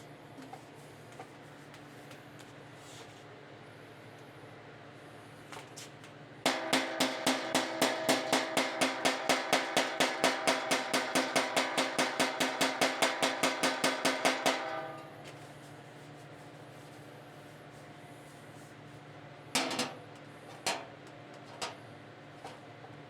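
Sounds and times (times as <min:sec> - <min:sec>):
hammer striking steel: 0:06.5 - 0:15.2.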